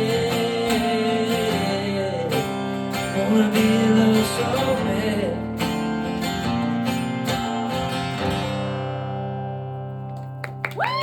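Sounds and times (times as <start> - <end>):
acoustic guitar strumming: 0.0 - 10.6.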